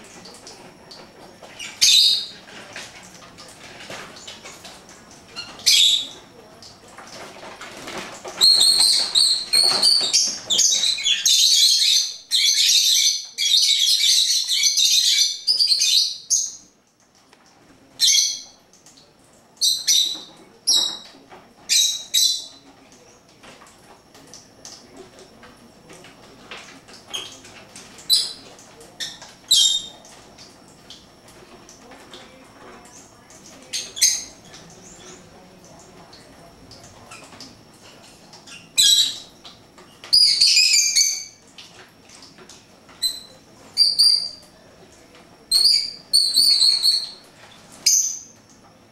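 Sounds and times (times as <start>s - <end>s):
pet birds chirping: 0.9s - 2.5s, 5.3s - 6.2s, 8.4s - 16.7s, 19.6s - 22.7s, 28.0s - 30.2s, 32.8s - 35.4s, 38.4s - 39.4s, 40.0s - 41.4s, 43.0s - 44.5s, 45.5s - 48.4s.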